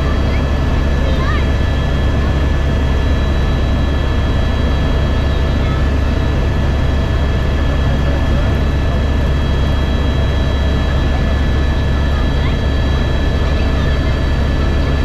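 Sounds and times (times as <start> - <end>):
helicopter rotor and engine drone: 0.0 - 15.0.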